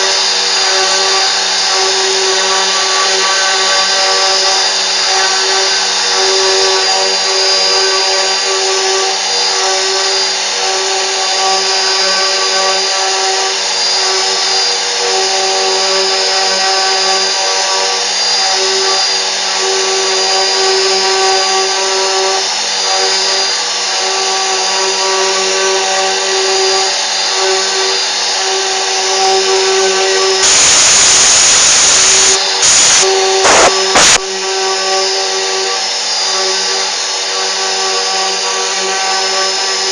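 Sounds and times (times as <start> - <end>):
cnc machine whining: 0.0 - 39.9
rushing hiss: 30.4 - 34.2.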